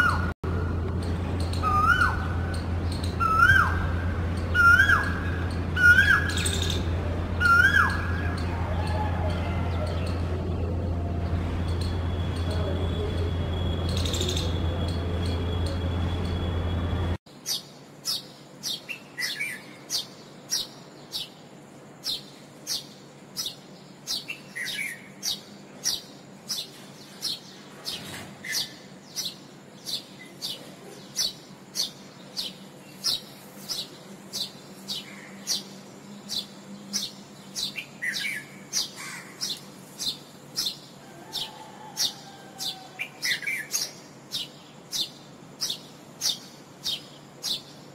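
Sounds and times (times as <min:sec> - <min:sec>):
loud steady noise with low hum: 0:00.0 - 0:18.0
bird chirping: 0:01.0 - 0:47.9.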